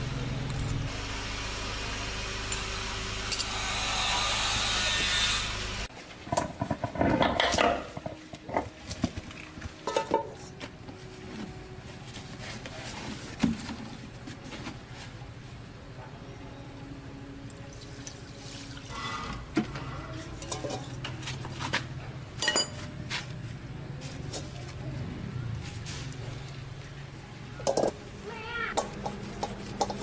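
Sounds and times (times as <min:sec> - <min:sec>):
metal parts and tools clinking: 0:00.4 - 0:00.9, 0:22.4 - 0:22.9, 0:27.6 - 0:28.0.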